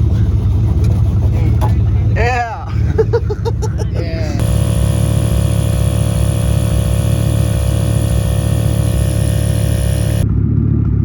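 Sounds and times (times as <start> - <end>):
car engine idling: 4.4 - 10.2.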